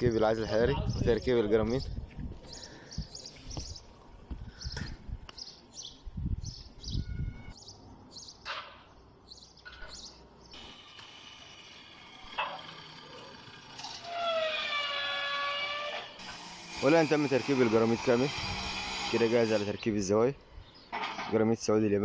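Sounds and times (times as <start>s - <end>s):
small birds chirping: 0.0s - 10.7s, 19.7s - 21.0s.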